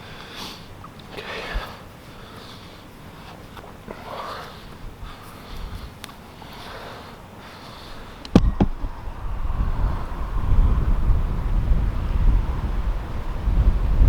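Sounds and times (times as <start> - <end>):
person breathing hard: 0.0 - 10.2
wind rumble on microphone: 8.0 - 14.0
sharp knocks: 8.3 - 8.9.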